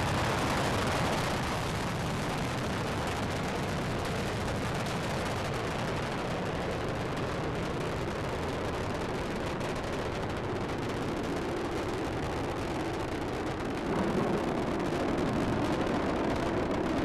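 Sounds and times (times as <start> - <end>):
rocket engines roaring with crackle: 0.0 - 17.0.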